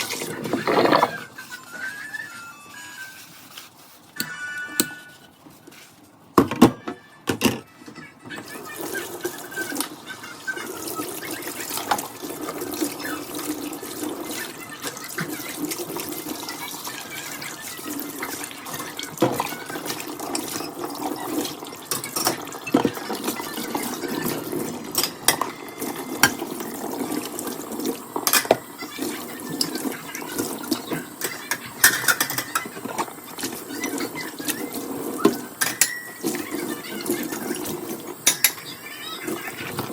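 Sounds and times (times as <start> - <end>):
dishes and utensils clinking: 14.2 - 39.9.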